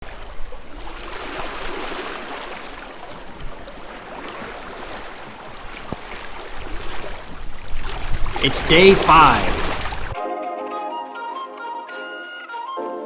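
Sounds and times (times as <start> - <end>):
water rushing along boat hull: 0.0 - 10.2
small water splashes: 0.2 - 8.4, 9.6 - 10.2.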